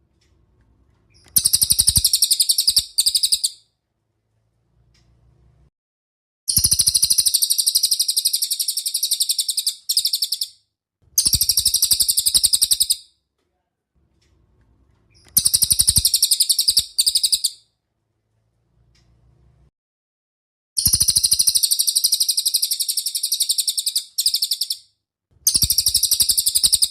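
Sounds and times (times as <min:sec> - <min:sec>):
songbird chattering trill: 0:01.2 - 0:03.6, 0:06.5 - 0:10.5, 0:11.2 - 0:13.0, 0:15.2 - 0:17.6, 0:20.8 - 0:24.8, 0:25.5 - 0:26.9.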